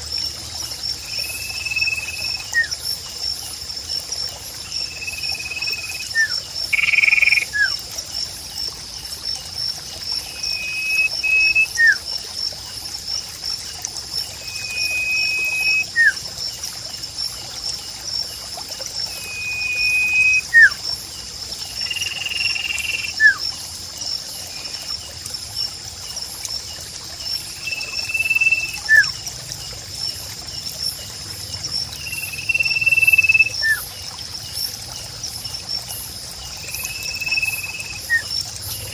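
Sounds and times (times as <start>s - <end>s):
insects chirring: 0.0s - 38.9s
water trickling: 0.0s - 38.9s
bird whistled calls: 10.4s - 12.0s, 14.4s - 16.2s, 19.2s - 20.8s, 27.8s - 29.1s, 32.2s - 33.8s, 36.8s - 38.3s.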